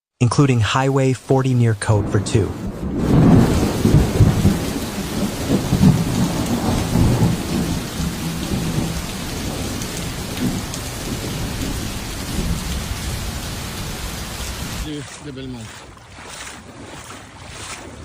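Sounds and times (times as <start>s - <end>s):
heavy rain: 0.2s - 16.4s
thunder rumbling: 1.9s - 14.8s.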